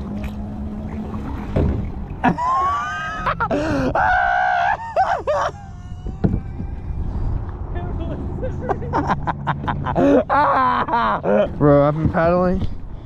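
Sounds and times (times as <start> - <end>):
water rumble: 0.0 - 13.0
wind rumble: 0.0 - 13.0
man crying out wordlessly: 2.4 - 7.0.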